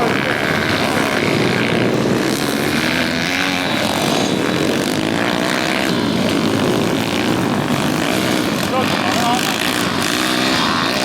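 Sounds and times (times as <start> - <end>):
pit bike engines racing: 0.0 - 11.0.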